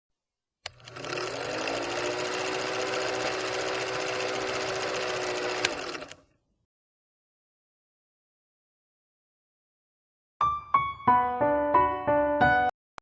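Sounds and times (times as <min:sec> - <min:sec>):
electric motor humming: 0:00.7 - 0:06.2.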